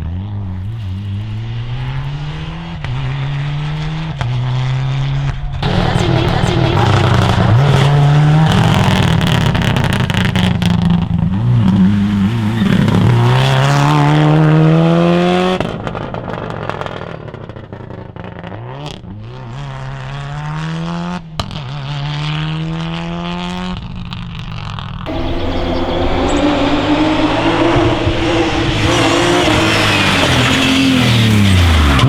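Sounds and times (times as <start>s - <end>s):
quieter engine revving: 0.0s - 9.5s, 25.1s - 32.0s
rally car engine accelerating: 0.0s - 17.1s, 25.1s - 32.0s.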